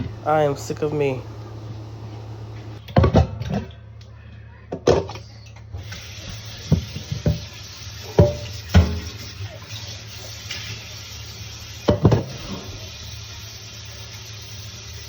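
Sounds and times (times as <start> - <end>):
even hiss: 0.0 - 2.8, 5.8 - 15.0
steady low hum: 0.0 - 2.8.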